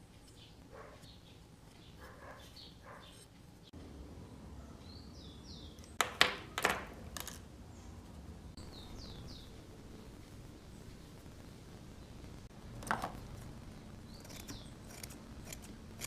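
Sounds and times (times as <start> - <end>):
birds chirping faintly: 0.0 - 16.0
sharp scraping strokes: 14.2 - 16.0.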